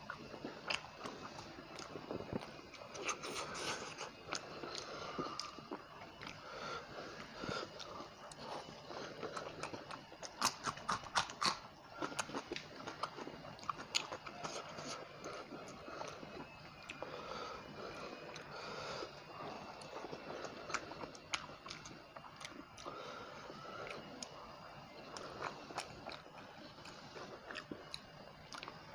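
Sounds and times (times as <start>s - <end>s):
chewing and crunching fish: 0.0s - 28.9s
wet mouth clicks: 10.3s - 11.6s.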